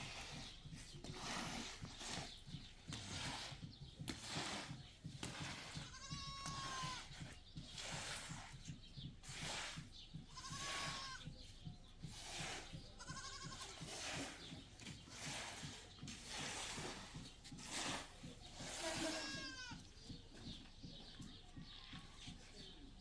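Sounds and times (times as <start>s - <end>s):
herd animals bleating: 5.8s - 7.1s, 10.3s - 11.3s, 13.0s - 13.7s, 18.7s - 19.9s.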